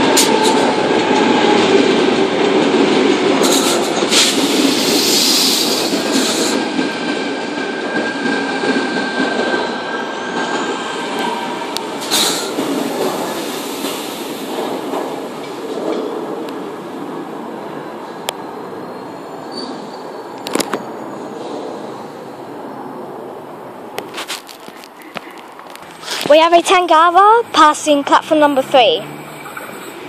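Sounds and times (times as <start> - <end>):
train rolling past: 0.0 - 30.0
wheel or brake squeal: 18.8 - 21.3.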